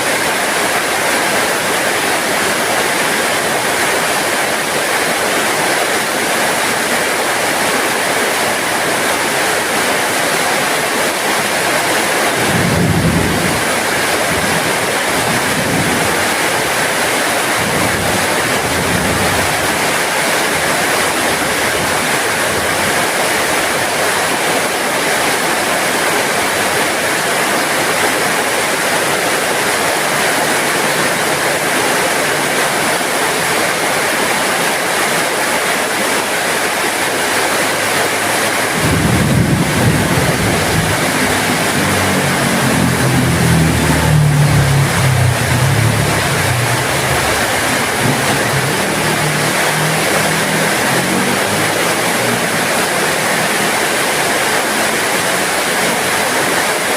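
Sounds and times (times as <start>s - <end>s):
heavy rain hissing: 0.0s - 56.9s
low rumble: 38.8s - 50.9s.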